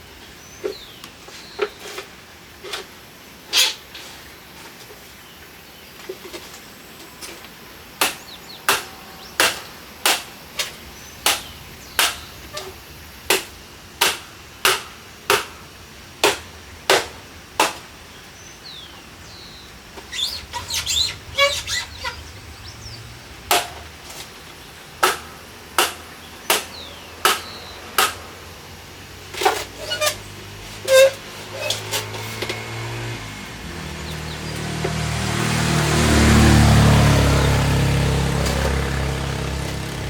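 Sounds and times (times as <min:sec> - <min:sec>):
sharp knocks: 0:08.0 - 0:10.3, 0:11.2 - 0:12.2, 0:13.3 - 0:15.6, 0:23.5 - 0:24.2, 0:25.0 - 0:28.2
faint bird chirps: 0:18.3 - 0:23.1.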